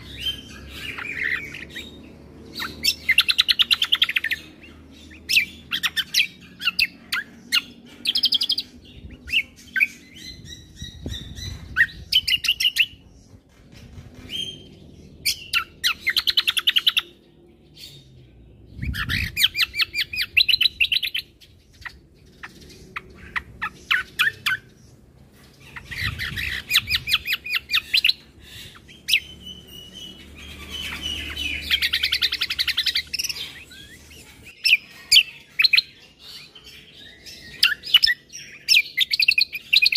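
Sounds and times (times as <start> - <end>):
songbird chattering trills: 18.7 - 39.9.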